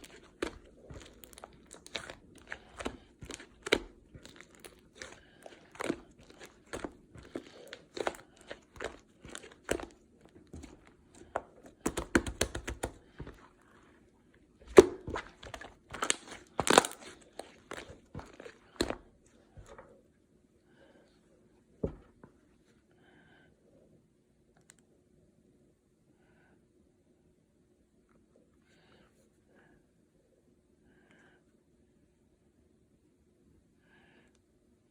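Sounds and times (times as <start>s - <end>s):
slime squished by hand: 0.0s - 14.0s, 14.6s - 19.9s.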